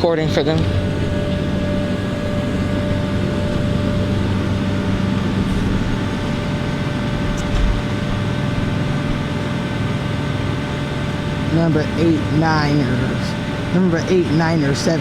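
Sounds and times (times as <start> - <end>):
machinery humming with whine: 0.0 - 15.0
short low thump: 7.4 - 7.8.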